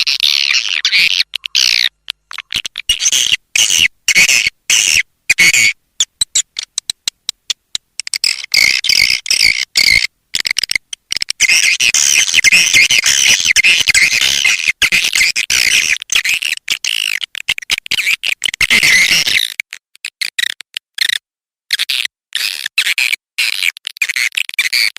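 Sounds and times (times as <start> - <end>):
swiftlets twittering chirps: 8.0 - 10.8.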